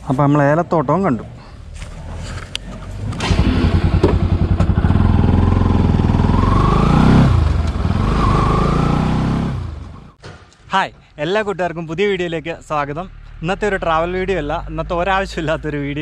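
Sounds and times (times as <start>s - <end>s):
motorcycle engine revving: 1.7s - 10.2s.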